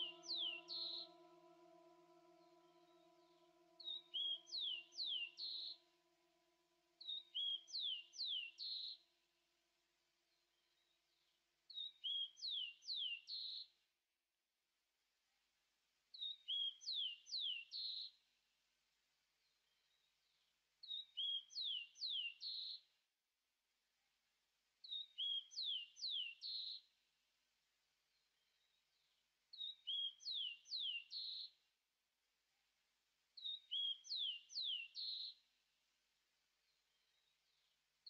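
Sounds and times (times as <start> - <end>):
songbird singing: 0.0 - 6.4, 7.0 - 9.0, 10.5 - 13.7, 16.2 - 18.1, 20.8 - 22.8, 24.8 - 26.9, 28.2 - 31.6, 33.4 - 35.4.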